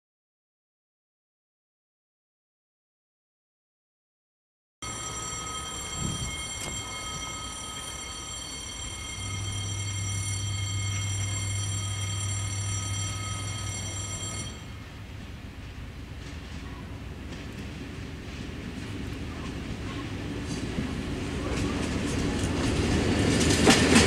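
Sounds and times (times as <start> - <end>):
steady high-pitched tones: 4.8 - 15.0
distant railcar approaching: 4.8 - 24.0.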